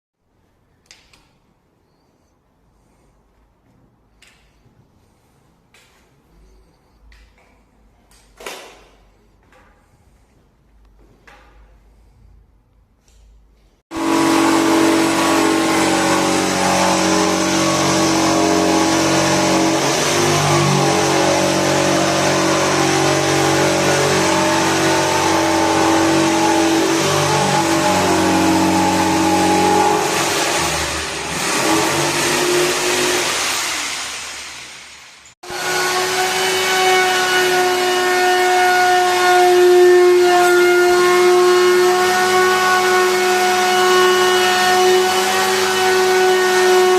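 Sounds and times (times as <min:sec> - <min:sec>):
electric woodworking power tool running: 0:13.9 - 0:46.9.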